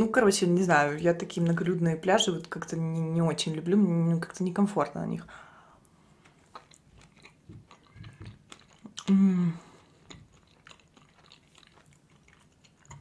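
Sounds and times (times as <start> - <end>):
close-up chewing: 6.1 - 13.0
wet mouth clicks: 6.6 - 9.2
person humming mmm: 9.0 - 10.0.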